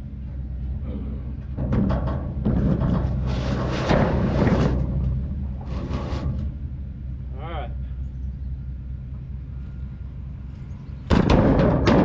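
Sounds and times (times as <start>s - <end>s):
truck engine idling: 0.0s - 12.0s
metal tank scraping: 1.5s - 6.8s, 11.1s - 12.0s.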